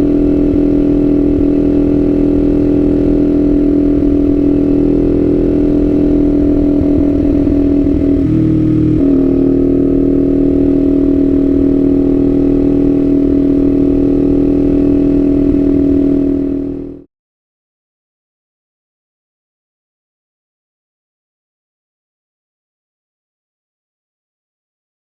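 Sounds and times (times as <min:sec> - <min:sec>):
motorcycle engine running: 0:00.0 - 0:17.1.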